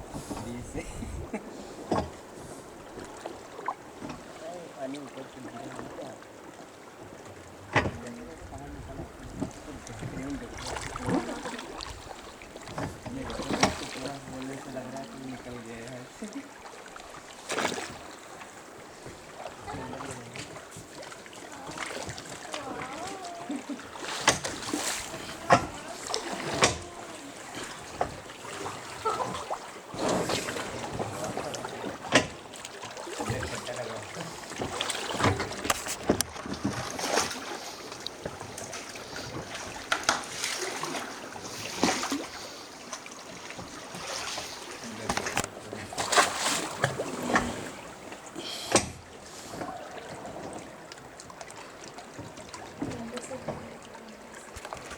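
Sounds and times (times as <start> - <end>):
water splashing around raft: 0.0 - 54.9
river water rushing: 1.5 - 54.9.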